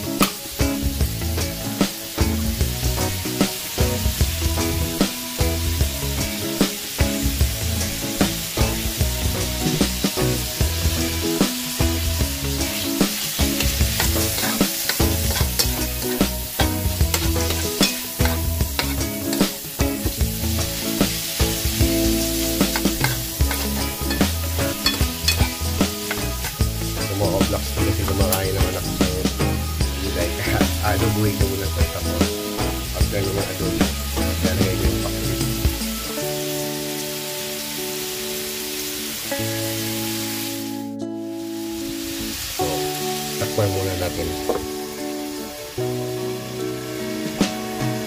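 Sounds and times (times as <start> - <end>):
background music: 0.0 - 48.0
food sizzling in hot oil: 0.0 - 48.0
spatula scraping a pan: 13.3 - 19.6, 22.4 - 26.6.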